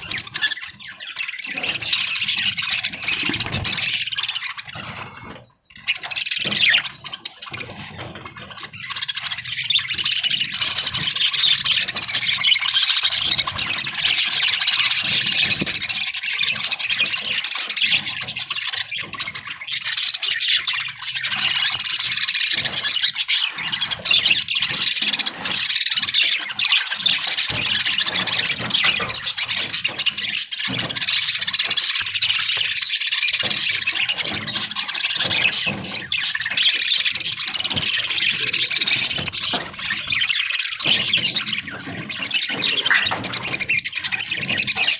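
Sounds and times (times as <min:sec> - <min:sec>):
budgerigars chattering and chirping: 0:00.0 - 0:44.9.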